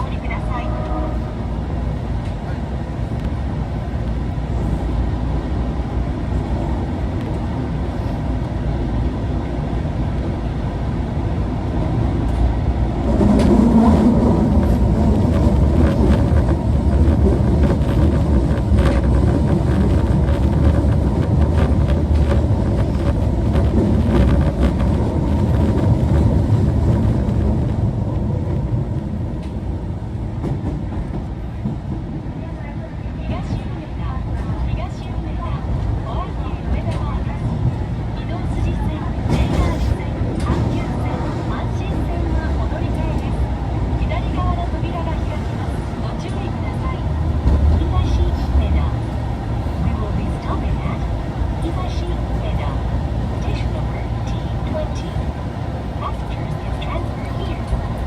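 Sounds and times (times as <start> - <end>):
subway car motors and wheels rumbling: 0.0 - 58.0.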